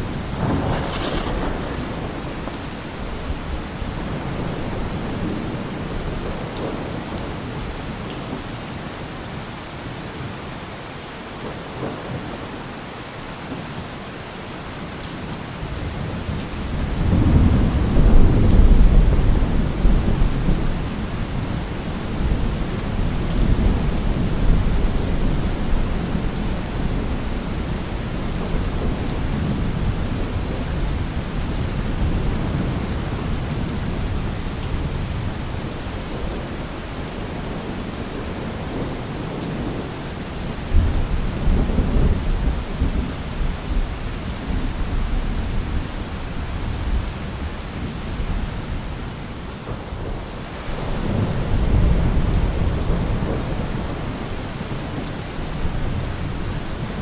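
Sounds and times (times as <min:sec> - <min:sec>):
rolling thunder: 0:00.0 - 0:07.3, 0:16.2 - 0:36.4
heavy rain: 0:00.0 - 0:57.0
sharp thunderclap: 0:00.2 - 0:05.6.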